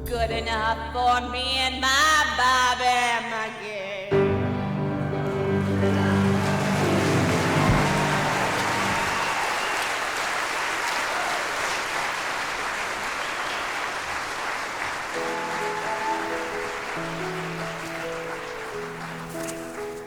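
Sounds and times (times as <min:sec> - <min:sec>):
band playing: 0:04.2 - 0:09.8, 0:15.1 - 0:19.4
audience applauding: 0:04.7 - 0:20.0.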